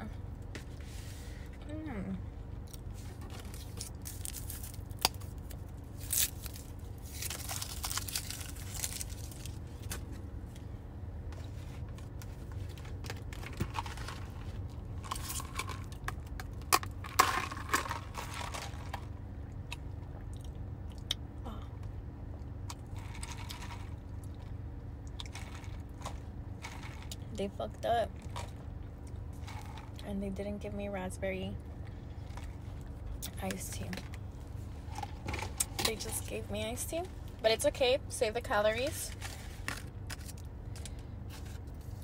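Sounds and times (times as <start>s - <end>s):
steady low hum: 0.0s - 42.0s
chewing crunchy fried food: 2.6s - 9.9s, 11.8s - 21.3s, 22.3s - 27.3s.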